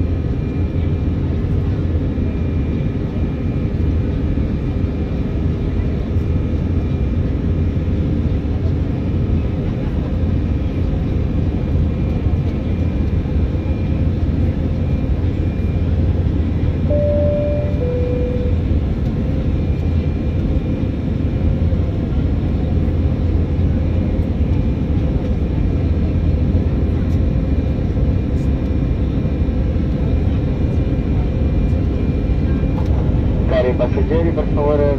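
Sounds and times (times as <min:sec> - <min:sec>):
airliner cabin rumble: 0:00.0 - 0:34.9
two-note cabin chime: 0:16.9 - 0:18.6.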